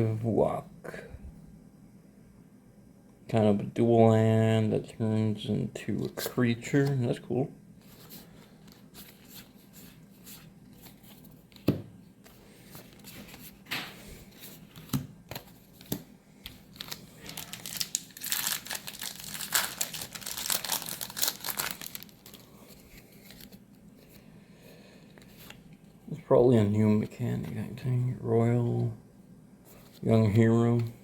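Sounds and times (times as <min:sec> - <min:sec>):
foil wrapper crinkling: 0:16.6 - 0:23.6.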